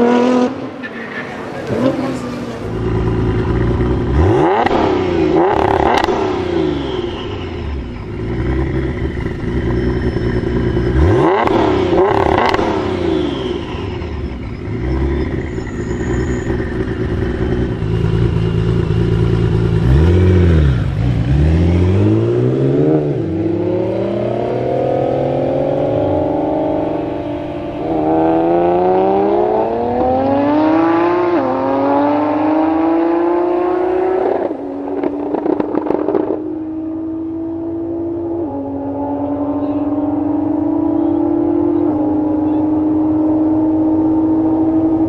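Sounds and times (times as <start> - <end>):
car engine revving: 0.0 - 45.0
cars accelerating away: 0.0 - 45.0
exhaust cracks: 34.2 - 36.5.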